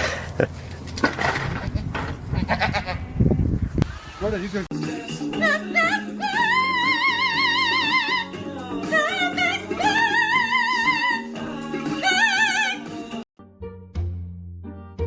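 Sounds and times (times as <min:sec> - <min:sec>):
operatic singing: 0:04.7 - 0:13.3.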